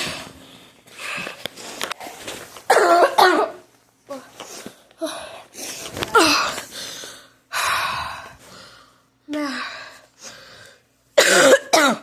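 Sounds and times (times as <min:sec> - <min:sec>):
person gasping breaths: 0:04.5 - 0:10.9.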